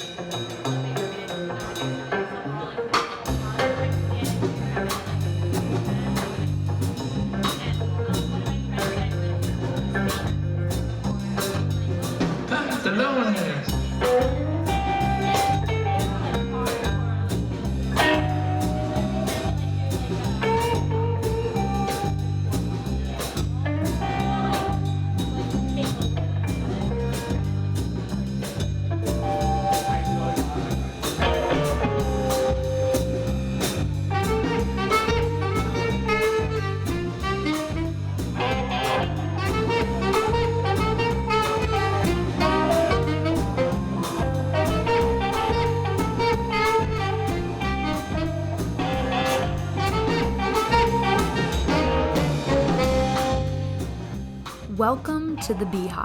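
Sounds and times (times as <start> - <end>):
drums with busy cymbals: 0.0 - 56.0
upright bass line: 3.2 - 12.7, 13.7 - 56.0
horn playing melody: 34.1 - 54.0.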